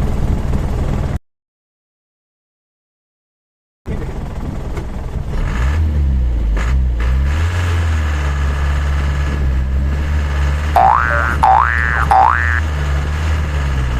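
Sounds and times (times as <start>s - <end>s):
truck engine running under load: 0.0s - 1.2s, 3.9s - 13.9s.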